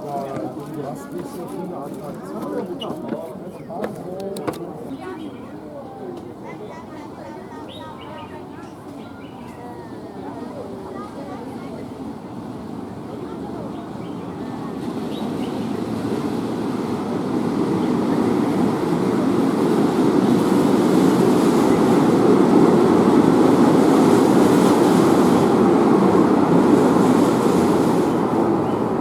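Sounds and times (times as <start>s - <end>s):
rail vehicle running on track: 7.5s - 29.0s.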